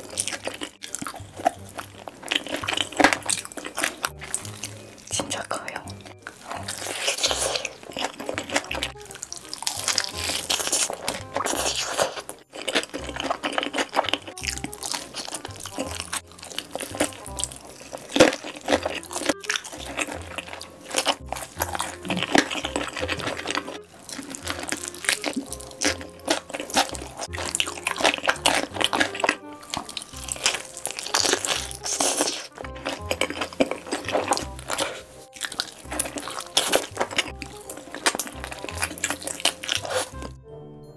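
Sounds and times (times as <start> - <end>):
crunching and chewing food: 0.0 - 40.4
background music with bass line: 0.0 - 40.9.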